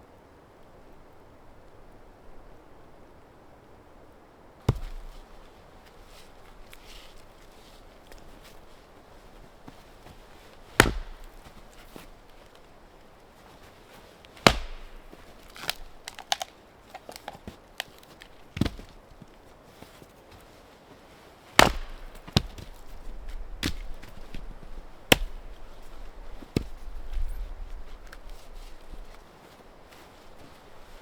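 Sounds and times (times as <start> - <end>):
axe chopping wood: 4.7 - 7.4, 8.0 - 12.8, 14.3 - 19.0, 21.6 - 29.1.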